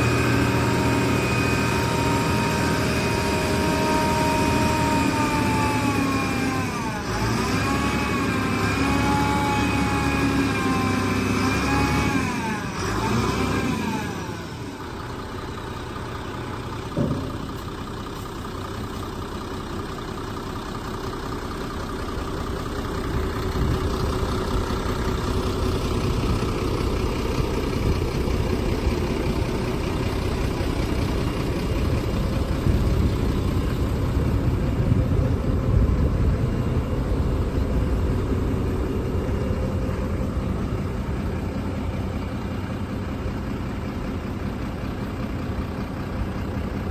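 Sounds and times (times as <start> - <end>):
diesel truck engine running: 0.0 - 46.9
single knock: 17.0 - 17.5.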